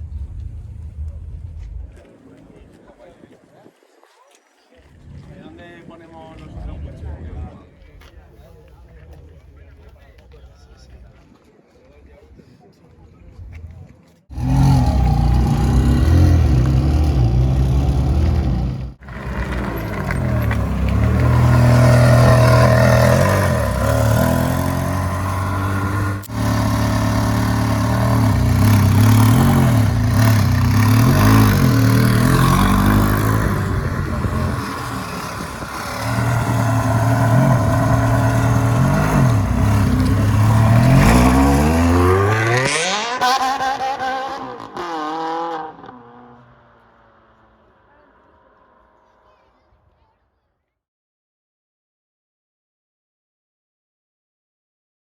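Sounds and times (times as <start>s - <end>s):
car engine revving and accelerating: 14.3s - 48.3s.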